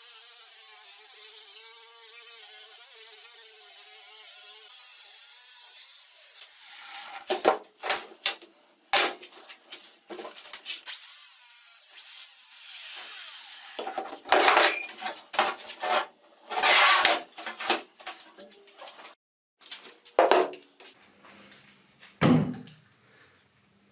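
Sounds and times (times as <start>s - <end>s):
tool scraping and rubbing: 6.4s - 11.1s, 12.0s - 19.2s.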